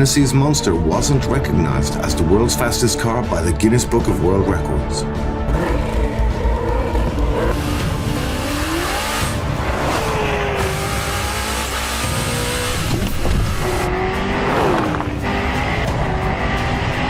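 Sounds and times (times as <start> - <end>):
sports car engine revving: 5.2 - 17.0.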